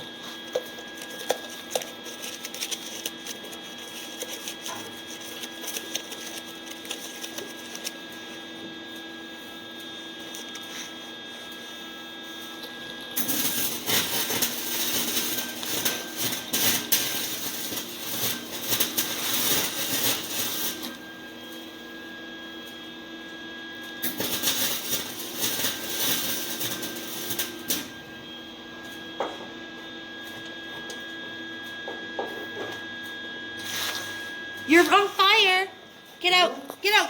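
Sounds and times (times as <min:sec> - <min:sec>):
steady machine hum: 0:00.0 - 0:30.7
welder arc crackling: 0:13.2 - 0:21.0, 0:24.0 - 0:28.0.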